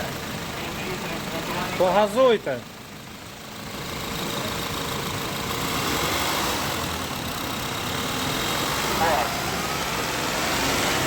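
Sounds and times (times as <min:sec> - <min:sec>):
car engine revving: 0:03.5 - 0:11.0.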